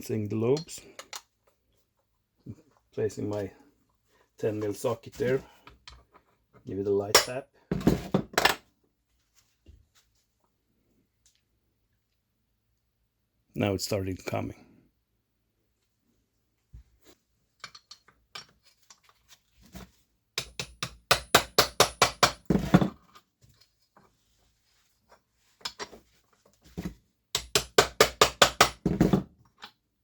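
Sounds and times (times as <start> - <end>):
hammer tapping on metal: 20.4 - 22.5.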